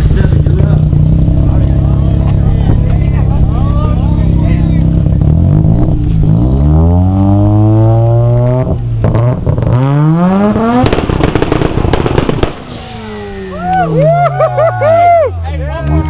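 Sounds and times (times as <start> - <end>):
exhaust pops crackling: 0.0 - 6.3, 7.5 - 13.9
car engine revving: 0.0 - 14.7.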